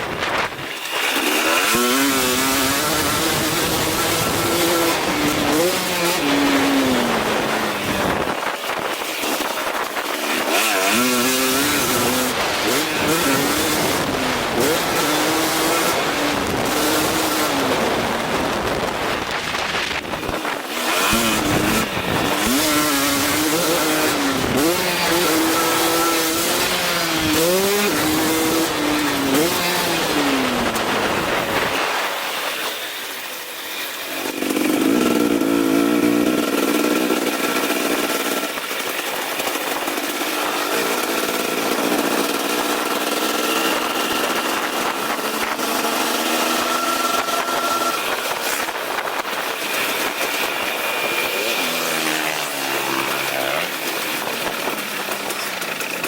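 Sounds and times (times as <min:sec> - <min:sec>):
dirt bike engine revving: 0:00.0 - 0:32.8, 0:33.7 - 0:56.0.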